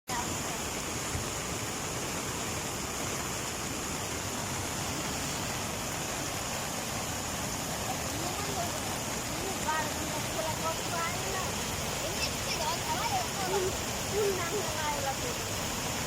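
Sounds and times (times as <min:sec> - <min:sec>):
flooded river rushing: 0:00.1 - 0:16.0.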